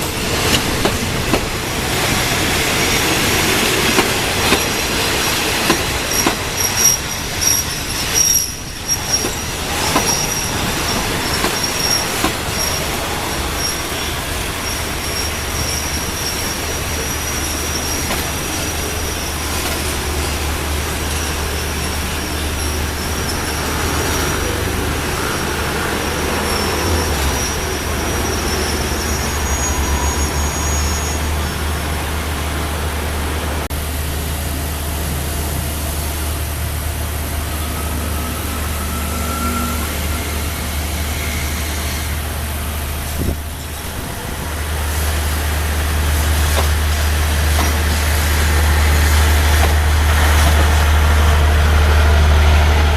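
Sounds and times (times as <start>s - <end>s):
high wheel squeal: 0.0s - 32.2s, 37.4s - 45.1s
train rumbling: 0.0s - 52.9s.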